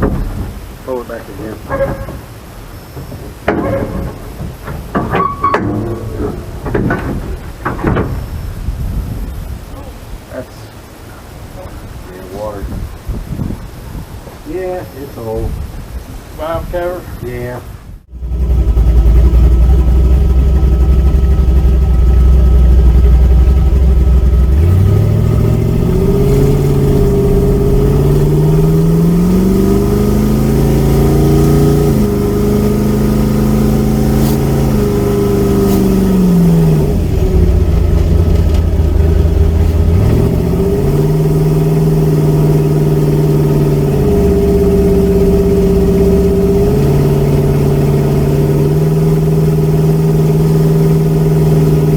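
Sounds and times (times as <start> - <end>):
car engine revving: 18.1 - 51.9.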